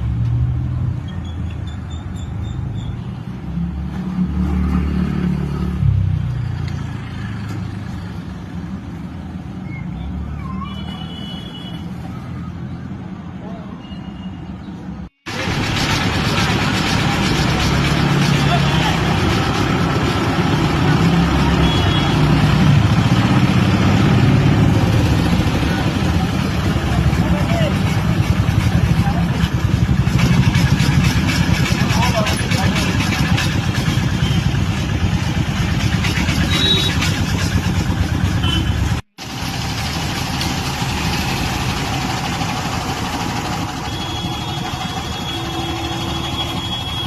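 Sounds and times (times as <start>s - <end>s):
street traffic: 0.0s - 47.0s
vehicle engine humming: 14.9s - 47.0s.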